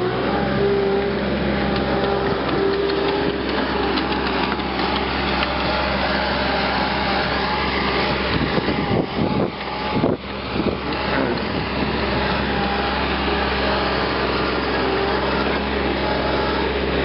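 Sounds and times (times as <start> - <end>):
power wire brush motor hum: 0.0 - 17.0.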